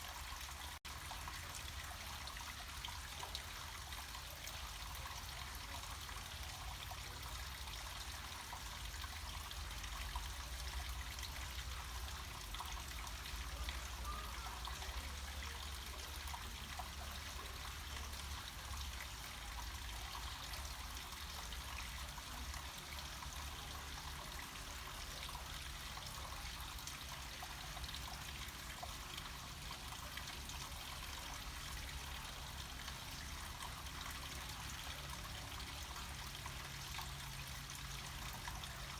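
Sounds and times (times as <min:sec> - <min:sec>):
stream water flowing: 0:00.0 - 0:38.9.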